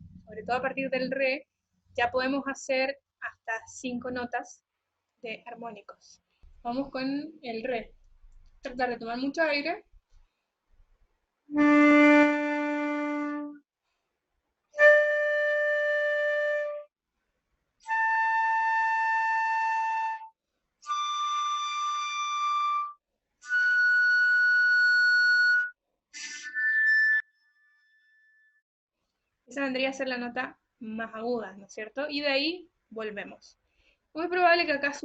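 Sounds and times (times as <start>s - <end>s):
flute playing long harmonic notes: 11.5s - 13.6s, 14.8s - 16.9s, 20.9s - 27.0s.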